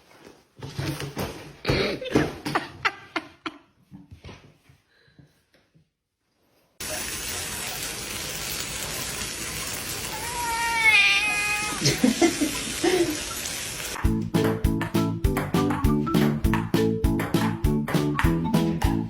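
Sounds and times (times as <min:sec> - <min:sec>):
water running from a tap: 0:06.8 - 0:14.0
cat meowing: 0:10.1 - 0:11.9.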